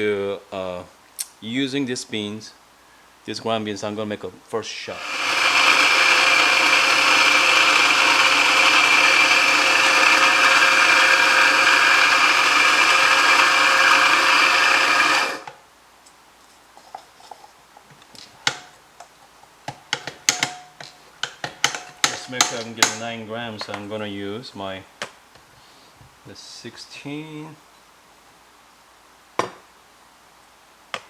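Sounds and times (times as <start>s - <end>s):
coffee grinder whirring: 4.9s - 15.6s, 22.0s - 23.0s.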